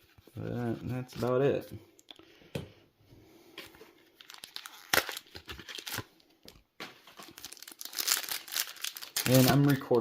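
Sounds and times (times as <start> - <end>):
foil wrapper crinkling and tearing: 4.2 - 6.2, 7.1 - 10.0.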